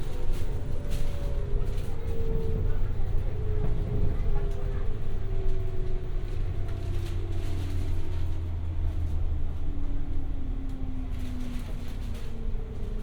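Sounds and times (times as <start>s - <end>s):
wheels rumbling on rail: 0.0s - 13.0s.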